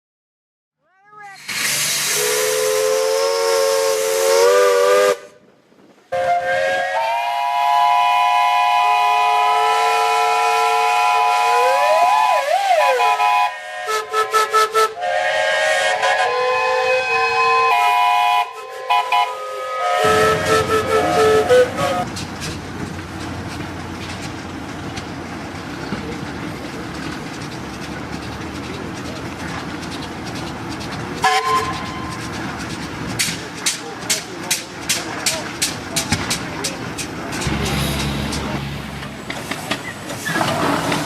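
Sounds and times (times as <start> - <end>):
steam hissing: 1.4 - 5.1
chime steam whistle blasts: 1.7 - 5.3, 6.2 - 22.0.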